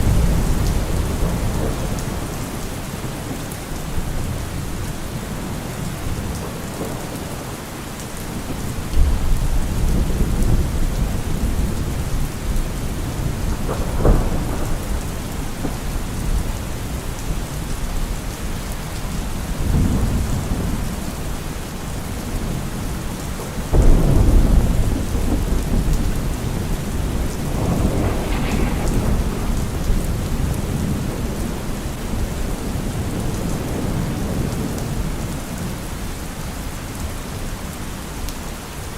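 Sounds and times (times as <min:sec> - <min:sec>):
thunder rolling: 0:00.0 - 0:07.5, 0:08.4 - 0:18.0, 0:23.7 - 0:35.4
rain falling on leaves: 0:00.0 - 0:38.9.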